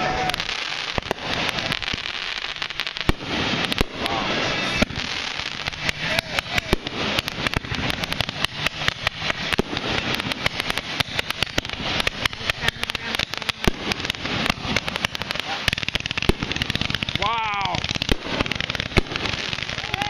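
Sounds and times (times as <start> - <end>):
fireworks bangs and pops: 0.0 - 20.0.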